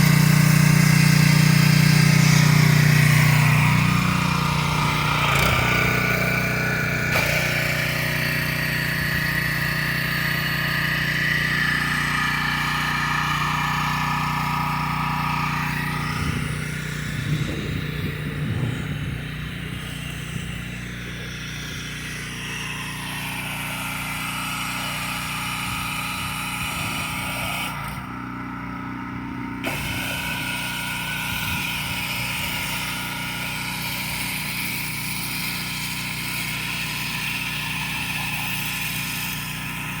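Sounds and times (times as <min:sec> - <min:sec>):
pressure washer engine running: 0:00.0 - 0:40.0.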